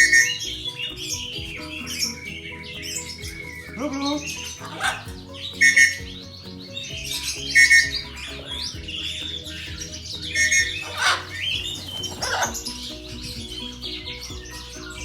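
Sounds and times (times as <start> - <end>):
background music with steady beat: 0.0 - 15.0
high bird chirps: 0.0 - 15.0.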